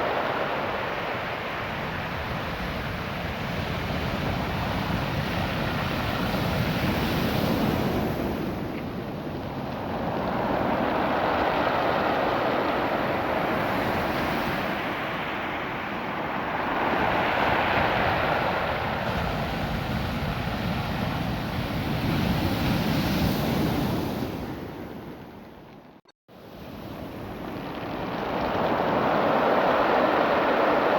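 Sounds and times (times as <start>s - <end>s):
surf washing over cobble stones: 26.7s - 30.9s.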